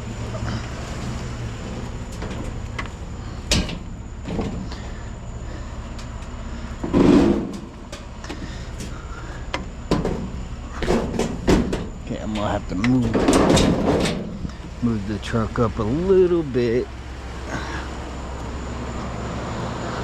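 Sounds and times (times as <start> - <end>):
steady low rumble: 0.0 - 20.0
scrap metal knocks: 2.0 - 4.9, 6.0 - 14.8
loud metal clunk: 2.1 - 4.8, 6.8 - 9.0, 9.6 - 12.1, 12.9 - 14.7.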